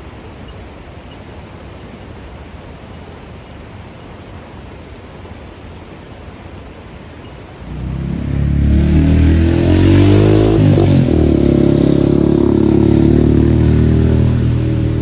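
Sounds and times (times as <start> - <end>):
motorcycle engine pulling away: 7.6 - 15.0.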